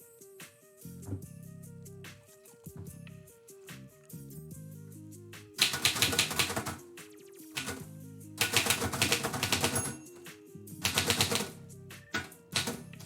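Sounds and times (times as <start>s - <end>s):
background music: 0.0s - 13.0s
typewriter keys clicking: 5.6s - 6.8s, 7.6s - 7.8s, 8.4s - 10.0s, 10.8s - 11.5s, 12.2s - 13.0s.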